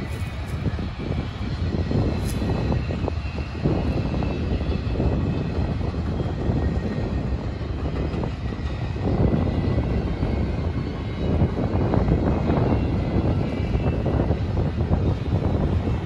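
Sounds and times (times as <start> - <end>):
steel wheels rumbling on rail: 0.0 - 16.0.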